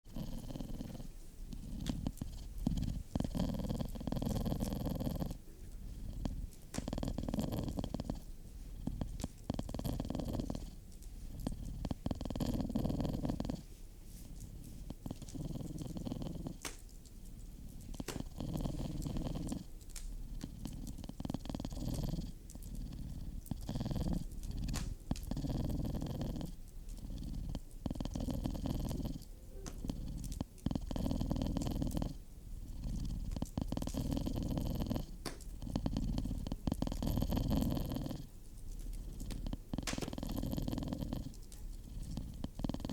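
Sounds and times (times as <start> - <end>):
cat purring: 0.0 - 42.9.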